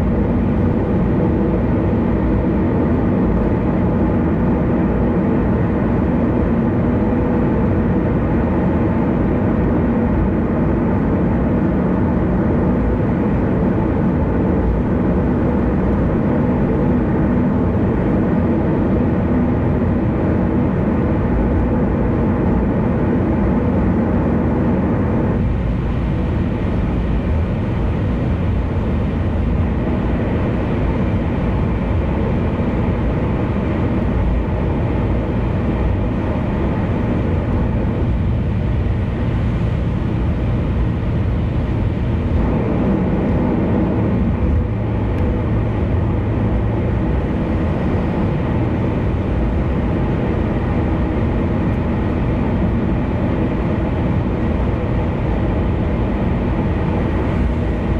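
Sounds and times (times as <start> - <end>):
low car engine hum: 0.0 - 57.9
tyre road noise: 25.2 - 57.9.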